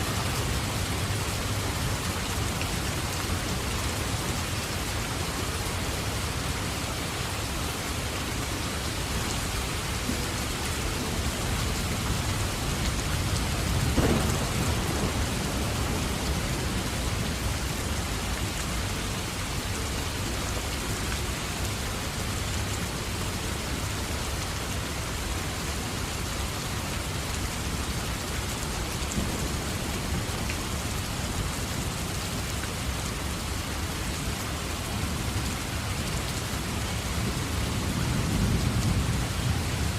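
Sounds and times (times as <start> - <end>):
heavy rain: 0.0 - 39.9
thunder rumble: 13.1 - 18.0.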